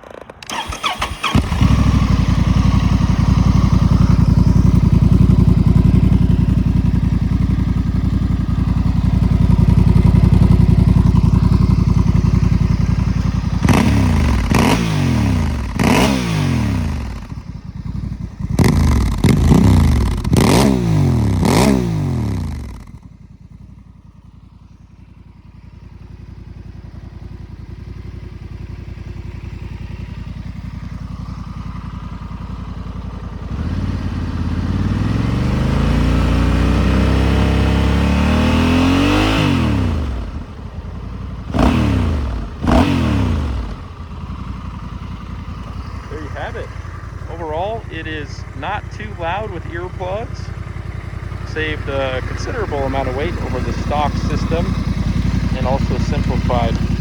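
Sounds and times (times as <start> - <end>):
motorcycle engine idling and revving: 0.0 - 57.0.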